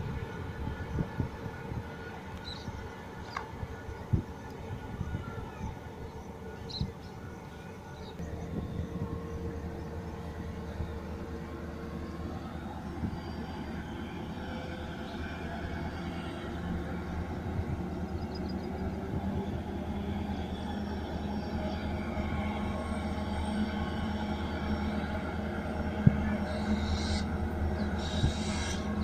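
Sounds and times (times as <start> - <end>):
distant goods train rumbling: 0.0 - 29.0.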